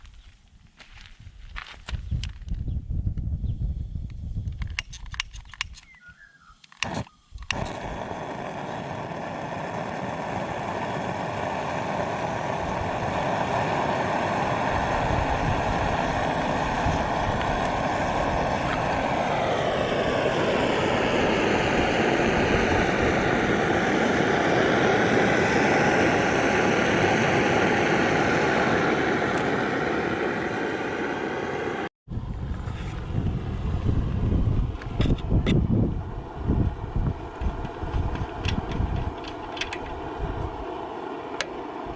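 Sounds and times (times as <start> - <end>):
two-stroke diesel engine running: 6.8 - 31.9.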